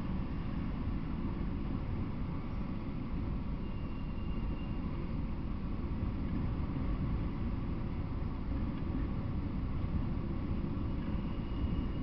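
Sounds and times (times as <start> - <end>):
train wheels rumbling on rails: 6.2 - 12.0.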